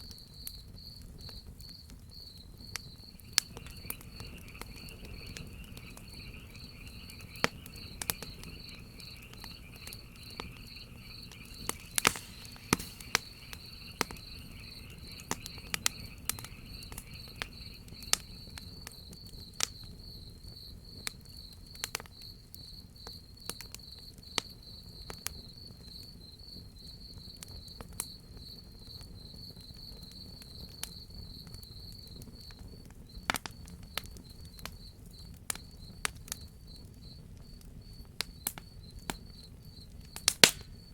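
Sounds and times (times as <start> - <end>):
crickets chirping: 0.0 - 40.9
wood fire crackling: 0.1 - 22.1, 29.9 - 40.9
low insect trill: 2.2 - 19.9.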